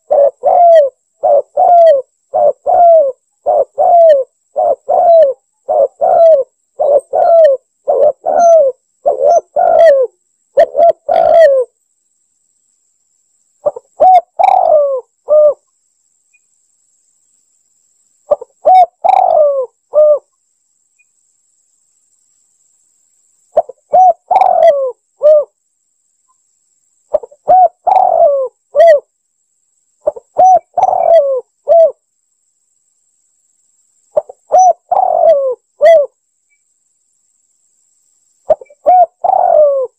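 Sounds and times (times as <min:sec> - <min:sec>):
dove cooing: 0:00.0 - 0:11.7, 0:13.6 - 0:15.6, 0:18.3 - 0:20.3, 0:23.6 - 0:25.6, 0:27.1 - 0:29.1, 0:30.0 - 0:32.0, 0:34.2 - 0:36.2, 0:38.5 - 0:39.9.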